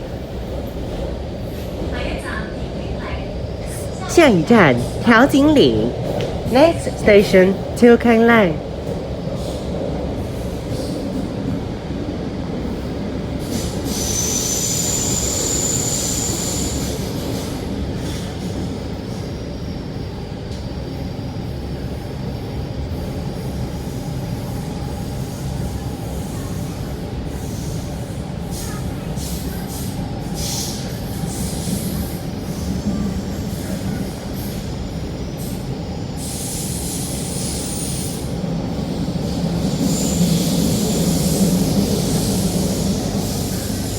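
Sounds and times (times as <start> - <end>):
train wheels rumbling on rail: 0.0 - 4.1, 8.5 - 43.9.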